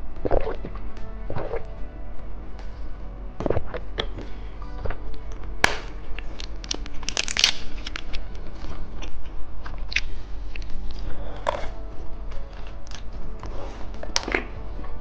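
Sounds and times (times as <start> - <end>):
background music: 0.0 - 15.0
crunching of candy being eaten: 5.6 - 11.8.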